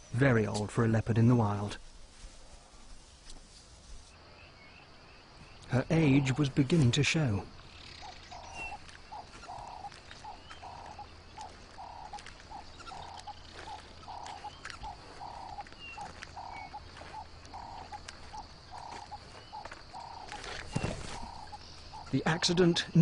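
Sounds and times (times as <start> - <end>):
high insect hum: 0.0 - 23.0
faint high chirps: 7.6 - 23.0
frog-like animal calls: 7.7 - 23.0.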